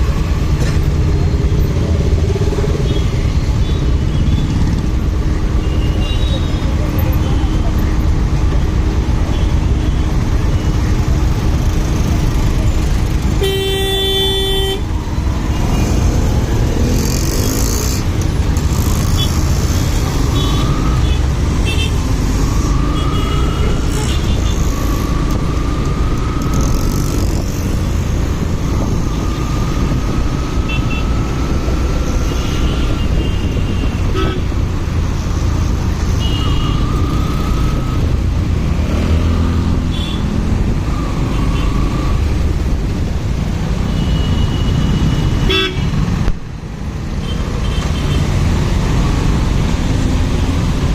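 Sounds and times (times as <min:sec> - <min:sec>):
vehicle horn honking: 0:13.4 - 0:14.8, 0:45.4 - 0:45.9.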